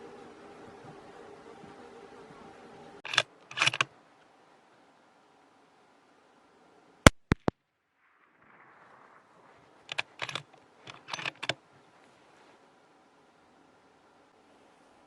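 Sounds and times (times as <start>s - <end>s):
rifle bolt metallic clicks: 3.1s - 3.9s, 7.1s - 7.5s, 9.9s - 11.6s
rifle shot crack: 7.1s - 10.4s.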